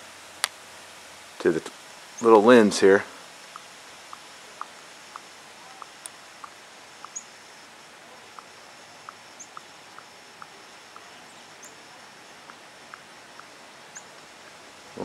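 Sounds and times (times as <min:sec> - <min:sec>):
steady outdoor hiss: 0:00.0 - 0:15.0
meltwater dripping: 0:03.2 - 0:15.0
faint high chirps: 0:03.5 - 0:15.0.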